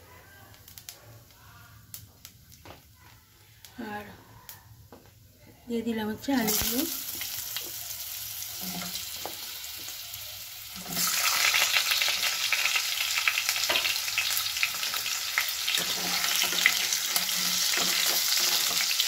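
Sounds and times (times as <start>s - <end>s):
potatoes sizzling in hot oil: 6.2s - 19.0s
spatula stirring and scraping: 15.7s - 19.0s.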